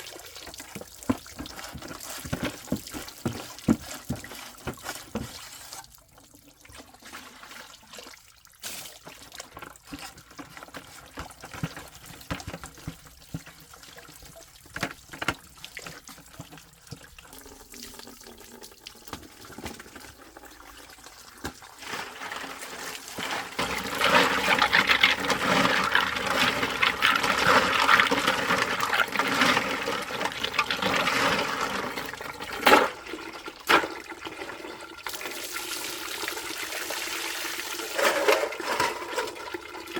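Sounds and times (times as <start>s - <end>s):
water splashing and trickling: 0.0s - 39.9s.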